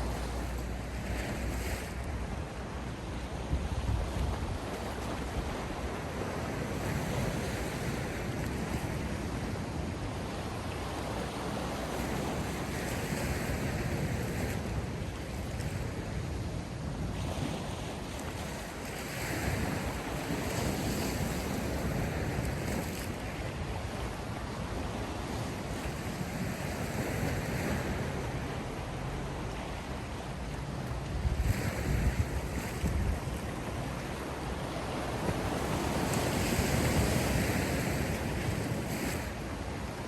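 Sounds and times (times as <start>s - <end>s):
sea waves washing ashore: 0.0s - 40.0s.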